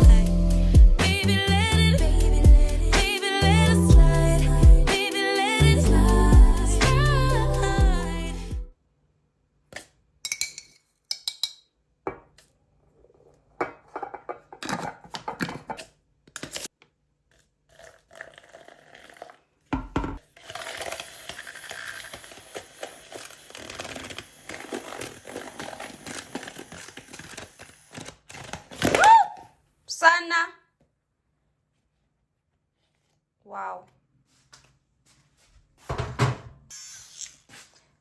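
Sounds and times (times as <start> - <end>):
dishes clinking and knocking: 13.6 - 15.8, 19.8 - 20.2
dishes scraping and rattling: 13.6 - 15.8.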